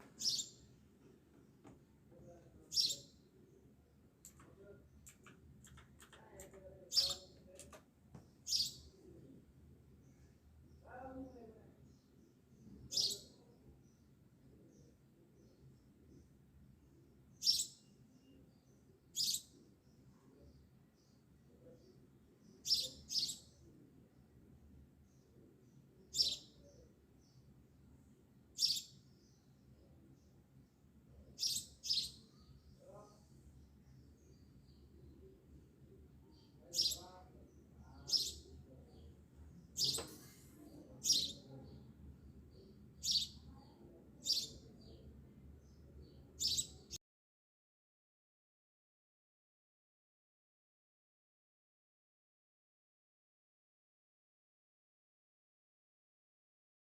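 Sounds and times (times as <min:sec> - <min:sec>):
bird chirping: 0:00.0 - 0:00.7, 0:02.2 - 0:03.2, 0:04.2 - 0:07.6, 0:08.3 - 0:09.2, 0:11.9 - 0:16.3, 0:17.3 - 0:23.7, 0:25.0 - 0:27.5, 0:28.6 - 0:30.3, 0:31.3 - 0:33.1, 0:36.2 - 0:47.0
faint low hum: 0:00.0 - 0:47.0.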